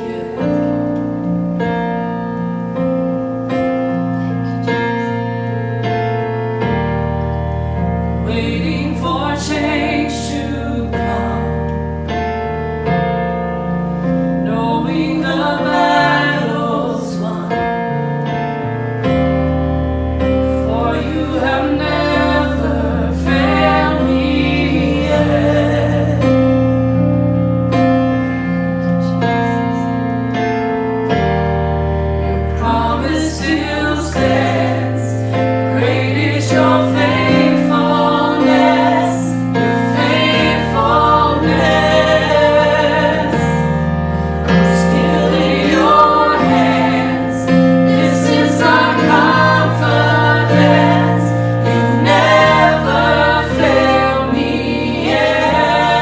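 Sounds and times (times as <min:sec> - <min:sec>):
keyboard playing sustained chords: 0:00.0 - 0:56.0
person singing worship song: 0:14.5 - 0:18.2, 0:20.4 - 0:26.5, 0:32.2 - 0:56.0.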